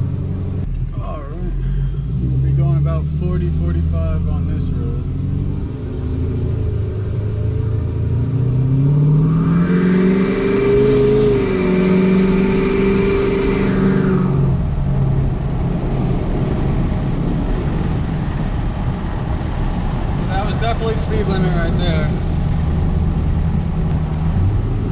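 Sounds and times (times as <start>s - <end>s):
diesel truck accelerating: 0.0s - 24.9s.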